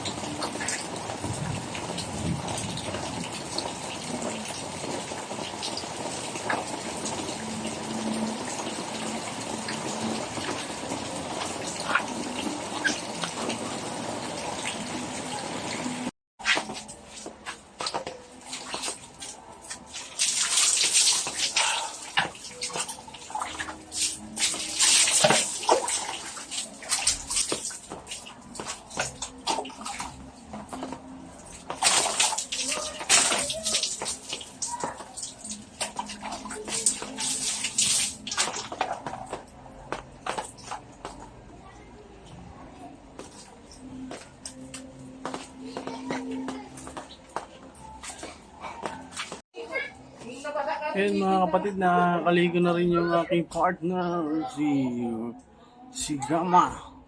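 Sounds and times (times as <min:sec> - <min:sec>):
steady rain pouring: 0:00.0 - 0:16.1, 0:18.3 - 0:40.4
water splashing and gushing: 0:00.0 - 0:40.9.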